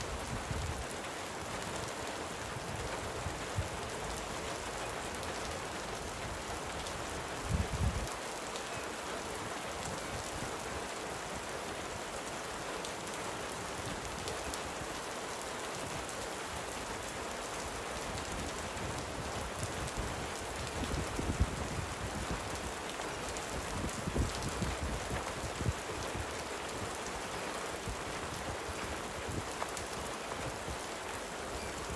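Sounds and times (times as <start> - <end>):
gentle rain hissing: 0.0 - 31.9.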